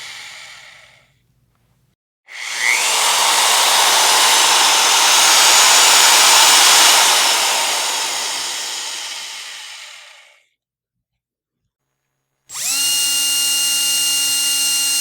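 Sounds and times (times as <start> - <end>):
power drill running: 2.3 - 10.2, 12.5 - 15.0.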